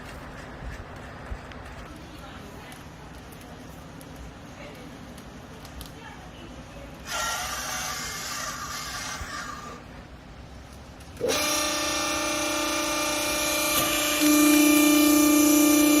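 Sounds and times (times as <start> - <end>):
baler motor and pump humming: 0.0 - 16.0.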